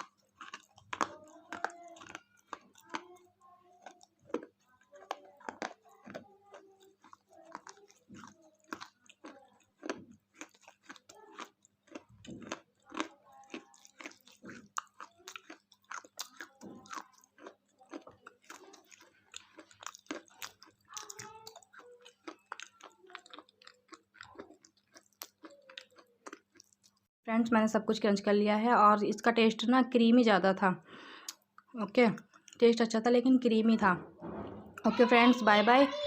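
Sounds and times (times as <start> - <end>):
chewing crisp wafer: 0.0 - 27.1.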